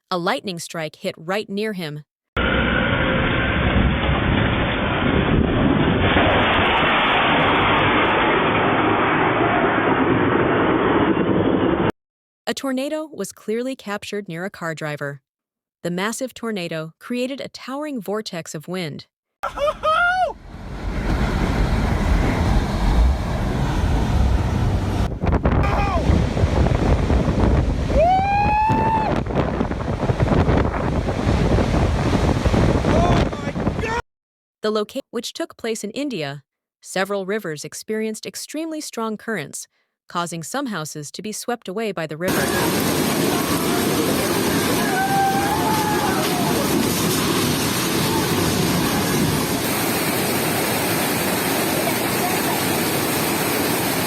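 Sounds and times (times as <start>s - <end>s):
person shouting: 19.4s - 20.4s, 25.6s - 26.1s, 27.9s - 29.2s, 44.7s - 46.7s
strong wind buffeting microphone: 19.8s - 34.0s.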